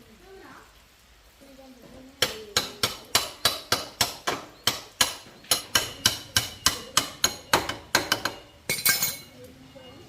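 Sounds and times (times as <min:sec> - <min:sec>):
hammer striking metal: 0:02.6 - 0:09.3.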